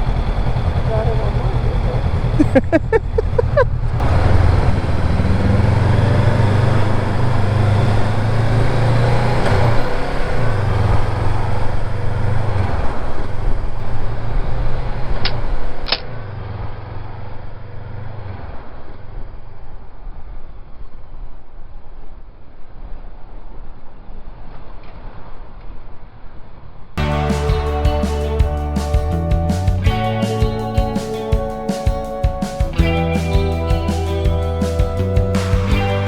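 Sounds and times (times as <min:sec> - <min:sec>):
motorcycle engine running: 0:00.0 - 0:15.7, 0:27.0 - 0:36.0.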